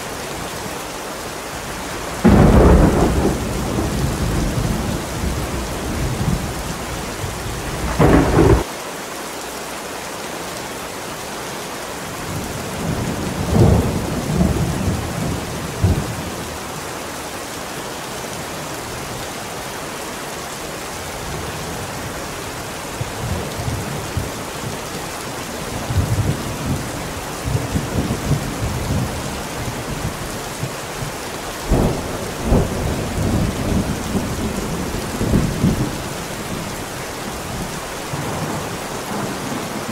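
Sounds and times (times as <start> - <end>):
steady rain: 0.0 - 39.9
thunder rumbling and cracking: 2.2 - 8.7, 12.3 - 16.4, 31.7 - 39.9.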